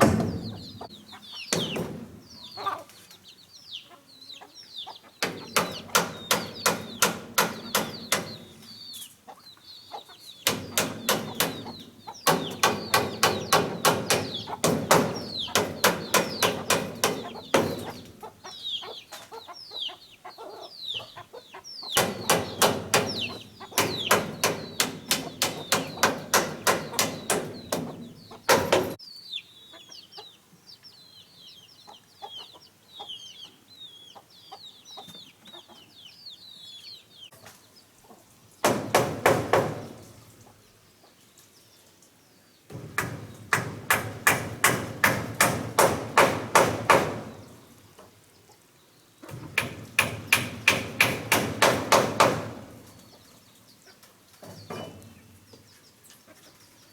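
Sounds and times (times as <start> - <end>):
chicks peeping: 0.0 - 56.9
rapid evenly spaced knocks: 5.2 - 8.4, 10.4 - 18.1, 22.0 - 29.0, 38.6 - 40.0, 42.7 - 47.4, 49.3 - 52.9.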